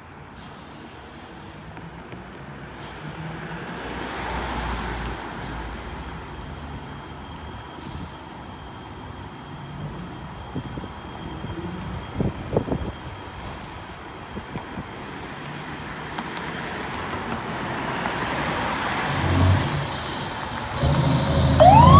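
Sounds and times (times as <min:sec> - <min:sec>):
fire engine driving past: 0:16.9 - 0:21.9.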